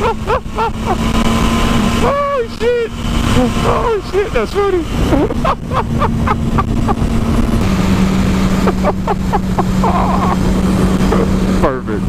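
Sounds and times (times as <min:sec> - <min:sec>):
people laughing: 0:00.0 - 0:01.1, 0:05.0 - 0:07.1, 0:08.6 - 0:10.4
motorcycle engine running: 0:00.0 - 0:12.0.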